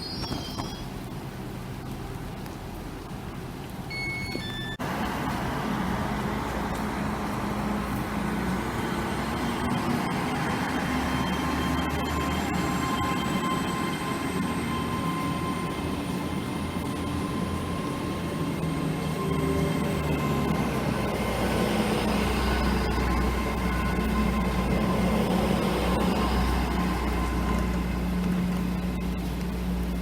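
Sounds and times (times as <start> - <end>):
diesel train engine drone: 4.5 - 30.0
faint high whine: 8.9 - 30.0.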